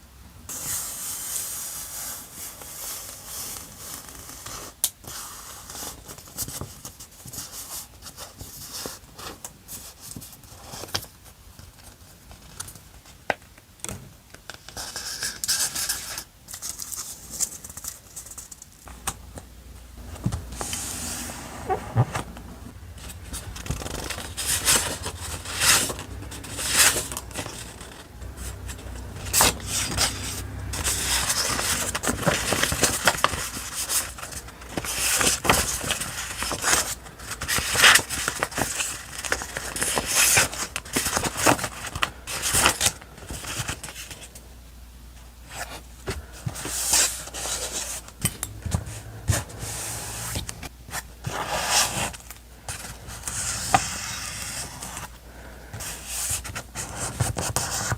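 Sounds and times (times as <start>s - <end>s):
paper scraping and rustling: 20.0s - 44.4s, 45.5s - 55.1s, 55.7s - 57.9s.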